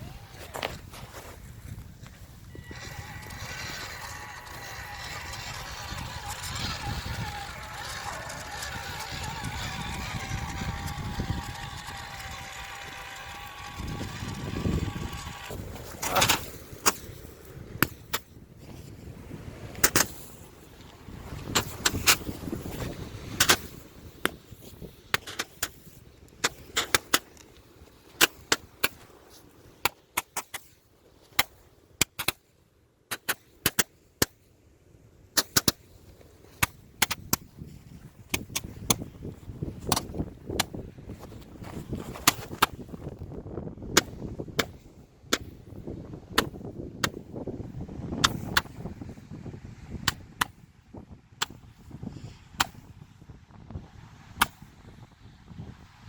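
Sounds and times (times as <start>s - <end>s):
sharp pops and cracks: 19.7s - 32.5s, 33.1s - 34.5s, 35.3s - 43.2s, 43.9s - 45.7s, 48.2s - 48.9s, 50.0s - 50.6s, 51.4s - 51.8s, 52.6s - 53.0s, 54.4s - 54.7s.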